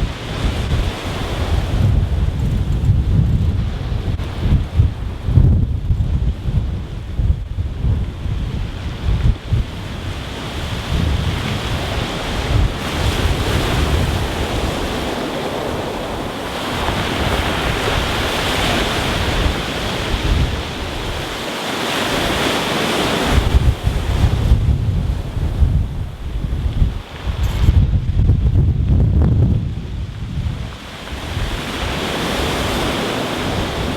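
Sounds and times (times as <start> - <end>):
wind buffeting microphone: 0.0 - 33.9
waves washing over pebbles: 8.0 - 27.9, 29.9 - 33.9.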